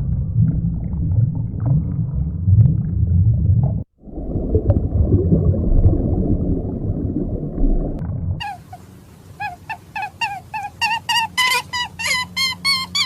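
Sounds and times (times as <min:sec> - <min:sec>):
deep animal calls: 0:08.4 - 0:13.0.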